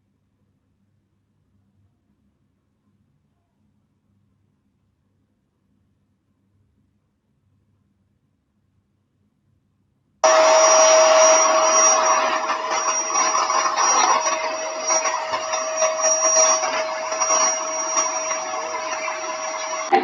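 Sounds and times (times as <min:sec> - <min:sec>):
appliance motor whirring: 0:10.2 - 0:20.0.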